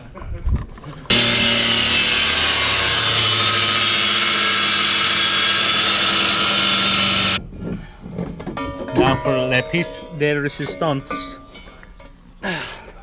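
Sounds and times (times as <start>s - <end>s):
power tool running: 1.1s - 7.4s.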